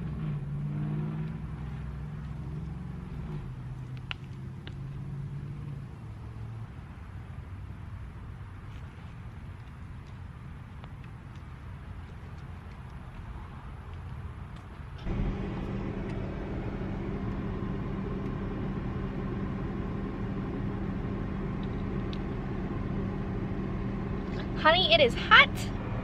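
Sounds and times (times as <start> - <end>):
car hum: 0.0 - 9.4, 15.0 - 26.0.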